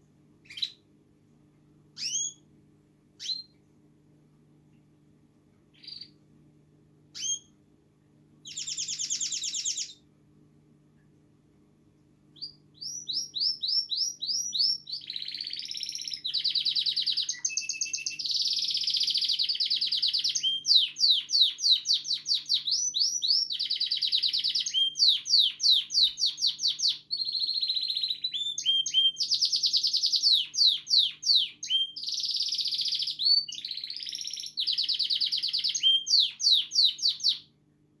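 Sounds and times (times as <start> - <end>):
canary singing trills: 0.4 - 0.8, 2.0 - 2.5, 3.2 - 3.6, 5.7 - 6.2, 7.1 - 7.5, 8.4 - 10.0, 12.3 - 37.5.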